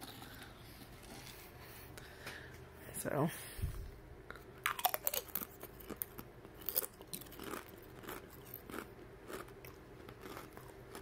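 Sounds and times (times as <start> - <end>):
crisp crunching while chewing: 0.0 - 1.6, 4.3 - 11.0.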